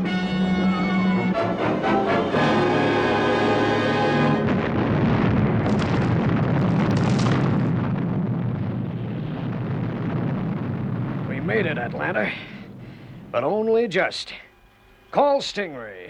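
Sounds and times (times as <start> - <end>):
dramatic music: 0.0 - 4.8
rumbling explosion: 3.8 - 14.0.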